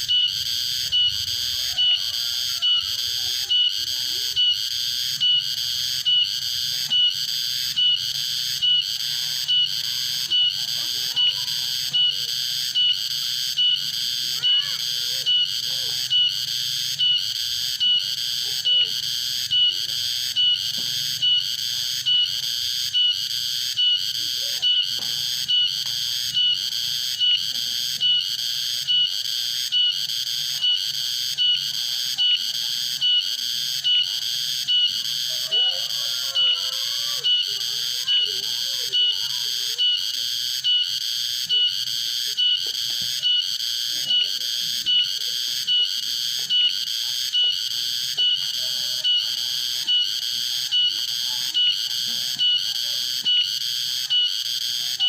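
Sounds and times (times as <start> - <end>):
cicadas buzzing: 0.0 - 55.0.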